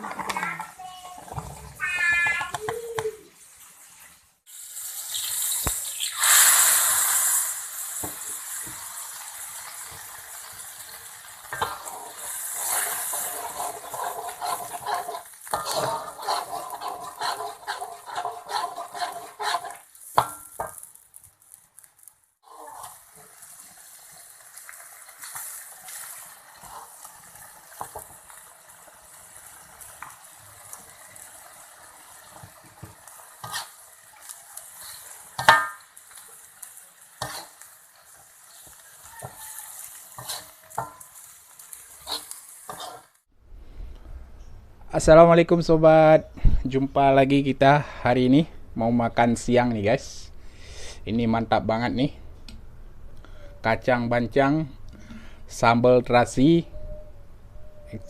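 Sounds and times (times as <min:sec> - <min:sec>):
food sizzling in a pan: 0:00.0 - 0:43.3
utensil stirring and scraping pan: 0:04.8 - 0:21.2, 0:22.4 - 0:43.3.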